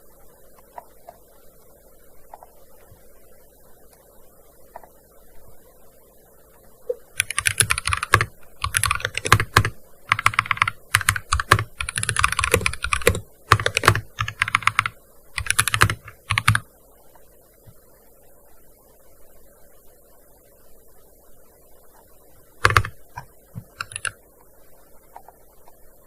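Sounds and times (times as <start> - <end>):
fast typing on keyboard: 7.2 - 16.6, 22.6 - 24.2.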